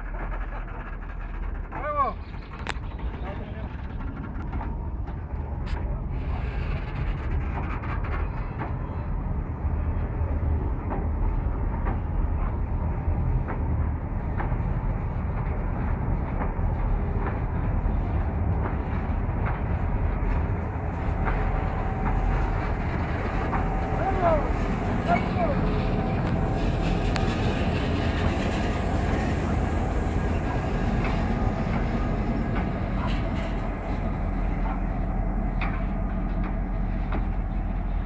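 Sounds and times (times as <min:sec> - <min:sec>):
diesel locomotive rumbling: 0:00.0 - 0:38.0
train wagons rumbling: 0:00.0 - 0:38.0
wheels and couplings clanking: 0:17.2 - 0:38.0.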